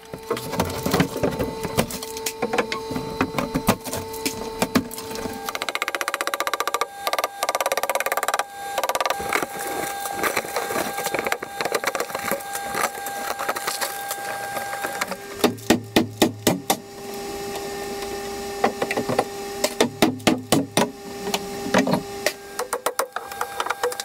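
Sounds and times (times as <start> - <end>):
plaster crumbling and tearing: 0.1 - 16.7
pry bar scraping plaster: 5.5 - 15.3.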